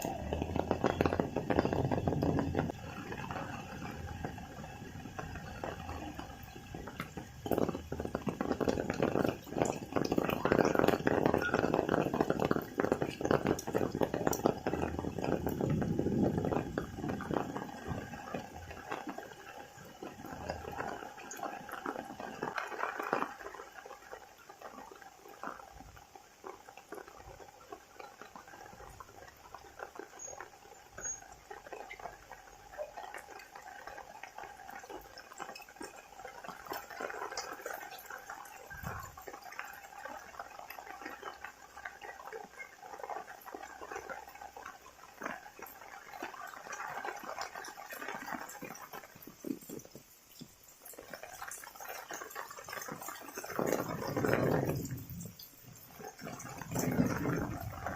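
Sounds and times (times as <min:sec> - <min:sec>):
thin steady tone: 0:00.0 - 0:25.8
faint rain hiss: 0:00.0 - 0:57.9
raindrops pattering and dripping: 0:00.0 - 0:57.9.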